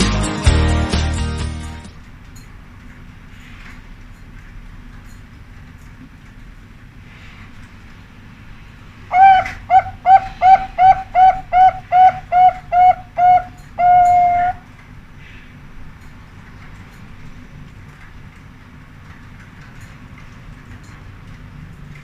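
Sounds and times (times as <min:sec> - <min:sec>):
dove cooing: 0:09.1 - 0:14.6.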